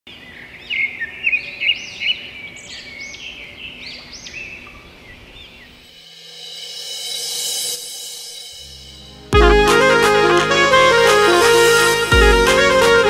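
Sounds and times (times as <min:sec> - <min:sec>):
birds chirping: 0:00.1 - 0:06.0.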